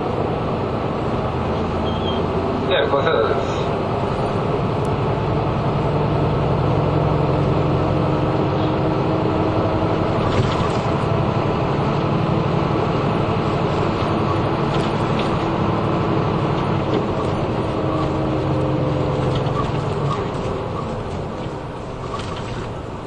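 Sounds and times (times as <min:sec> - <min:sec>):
bus engine drone: 0:00.0 - 0:23.0
road noise: 0:00.0 - 0:23.0.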